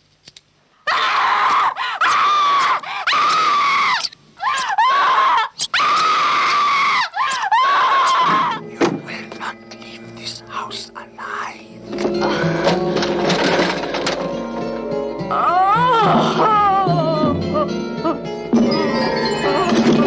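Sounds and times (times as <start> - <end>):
woman screaming: 0.9 - 8.6, 15.3 - 17.7.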